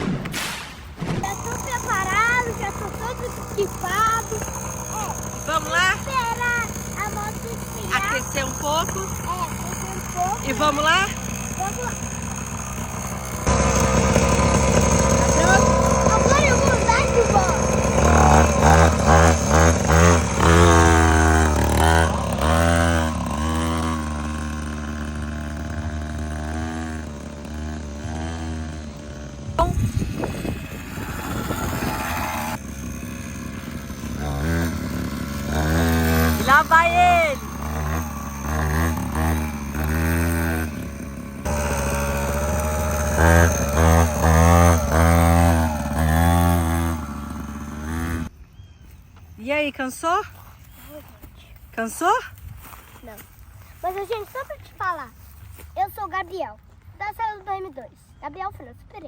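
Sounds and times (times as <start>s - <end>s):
small motorbike engine revving: 0.0s - 49.1s.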